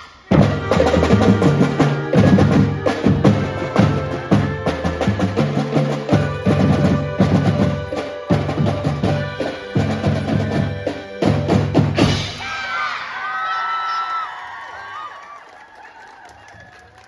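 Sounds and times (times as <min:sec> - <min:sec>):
marching band playing: 0:00.0 - 0:12.5
crowd voices and cheering: 0:12.2 - 0:17.0.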